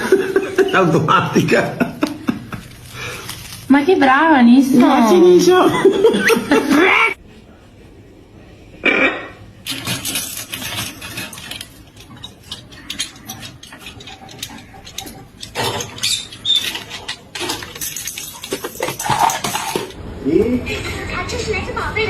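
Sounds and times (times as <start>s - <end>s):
rapid light clicking and scratching: 9.7s - 20.0s.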